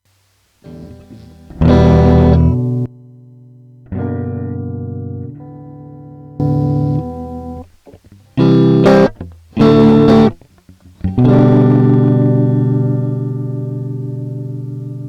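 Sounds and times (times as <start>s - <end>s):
electric guitar chords: 0.6s - 15.0s.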